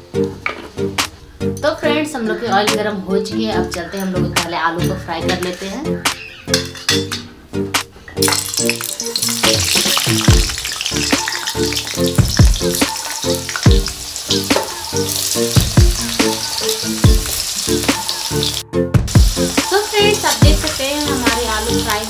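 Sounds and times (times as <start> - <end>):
background music with beat: 5.2 - 22.0
potatoes sizzling in hot oil: 8.2 - 22.0.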